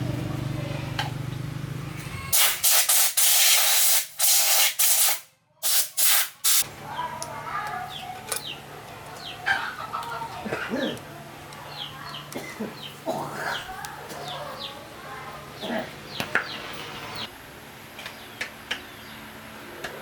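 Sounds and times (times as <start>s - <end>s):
compressed air spray hissing: 2.4s - 6.6s
small birds chirping: 6.8s - 17.3s, 18.0s - 19.5s
chickens clucking: 7.6s - 17.3s.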